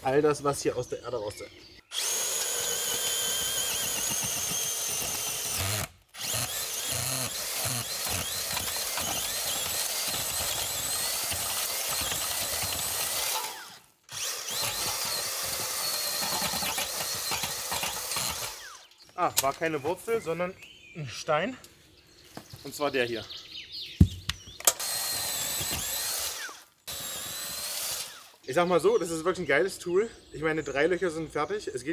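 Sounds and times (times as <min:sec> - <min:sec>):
power auger motor whining: 0:01.9 - 0:18.9, 0:24.6 - 0:28.4.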